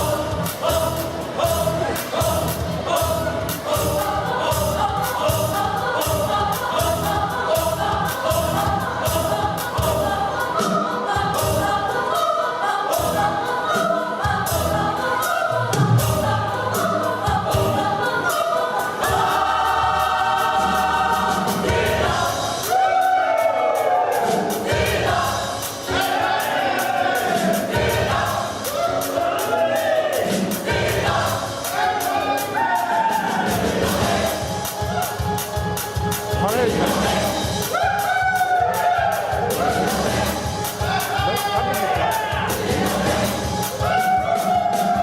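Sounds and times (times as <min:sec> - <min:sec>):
gospel choir singing: 0:00.0 - 0:45.0
steady beat: 0:30.1 - 0:45.0.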